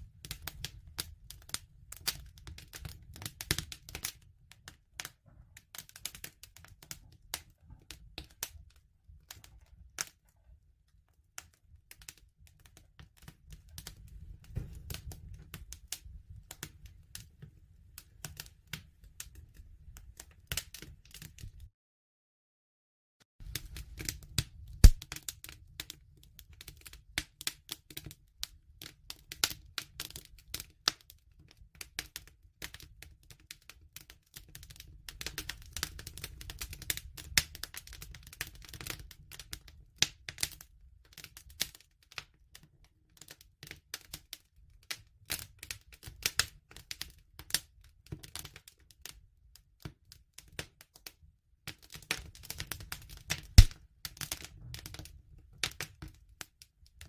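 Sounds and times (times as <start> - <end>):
campfire crackling and popping: 0.1 - 10.2, 11.4 - 21.7, 23.4 - 41.8, 51.7 - 56.1.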